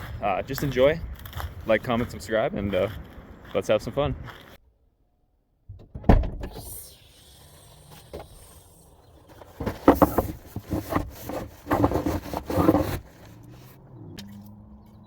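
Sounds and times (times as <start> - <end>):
rustling and scraping: 7.9 - 14.4.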